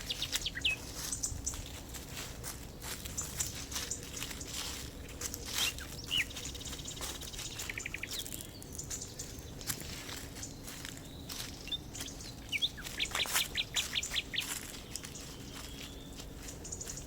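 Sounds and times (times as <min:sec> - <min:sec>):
rapid ticking bird trill: 0:00.0 - 0:01.7, 0:05.4 - 0:09.6, 0:10.4 - 0:17.0
small birds chirping: 0:00.0 - 0:17.0.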